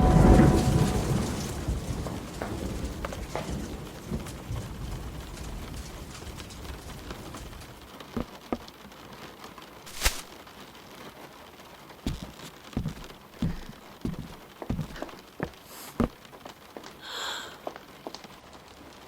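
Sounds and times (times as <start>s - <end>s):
rain falling: 0.0s - 12.3s, 15.5s - 19.0s
scattered knocks: 12.1s - 16.2s.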